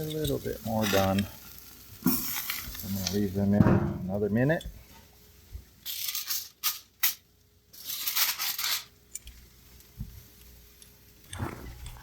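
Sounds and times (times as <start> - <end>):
steaks hissing on grill: 0.0 - 3.5.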